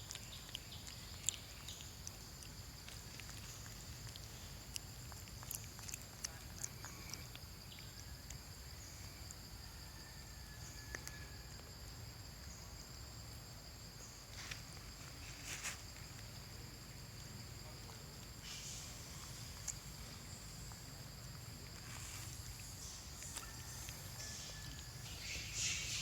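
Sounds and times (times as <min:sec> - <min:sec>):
high-pitched insect drone: 0:21.8 - 0:26.0.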